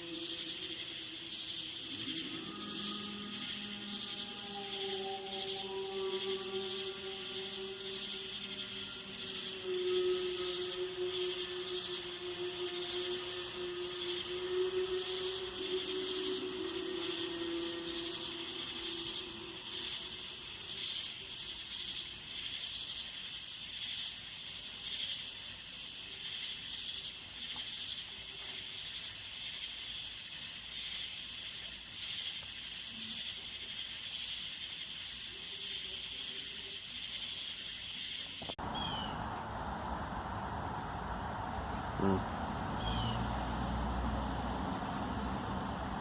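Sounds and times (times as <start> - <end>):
high-pitched whine: 0.0 - 20.5, 38.5 - 46.0
pulsing hiss: 0.0 - 20.8, 38.5 - 46.0.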